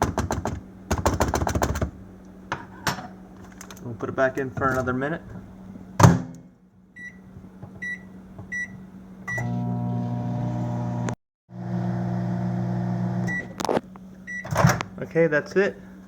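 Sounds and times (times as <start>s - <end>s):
microwave keypad beeps: 7.0s - 7.2s, 7.8s - 9.5s
microwave oven humming: 7.0s - 15.1s.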